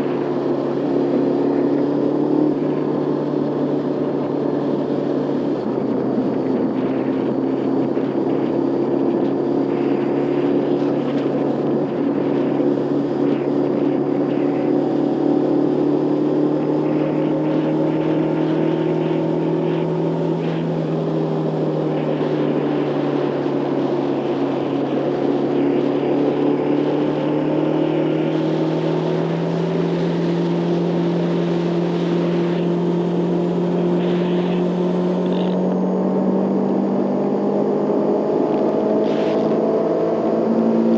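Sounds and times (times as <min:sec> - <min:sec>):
motorcycle engine running: 0:00.0 - 0:40.9
rushing noise: 0:00.0 - 0:40.9.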